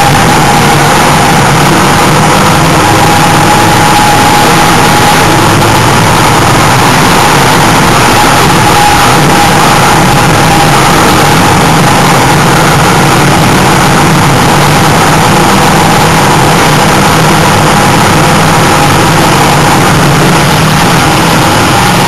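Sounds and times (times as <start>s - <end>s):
race car engine running: 0.0s - 22.0s.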